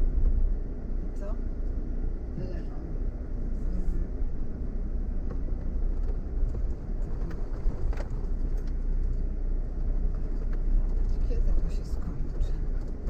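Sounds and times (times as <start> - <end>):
vehicle rumble from inside cabin: 0.0 - 13.0.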